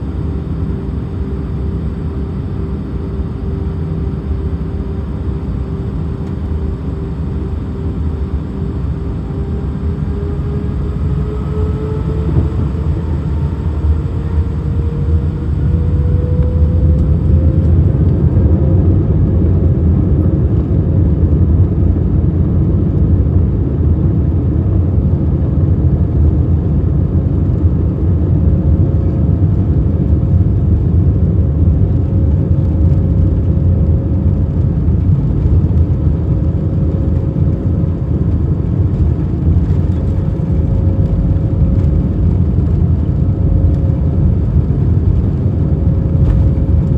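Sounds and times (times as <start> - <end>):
jet engines whining: 0.0 - 19.7, 31.9 - 46.9
loud low rumble: 0.0 - 46.9.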